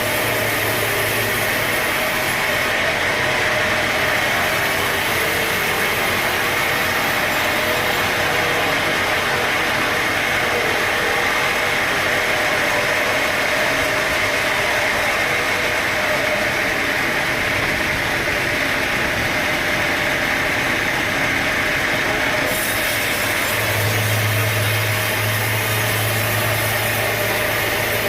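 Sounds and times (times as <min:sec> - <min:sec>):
high machine whine: 0:00.0 - 0:28.0
sawmill machinery drone: 0:00.0 - 0:28.0.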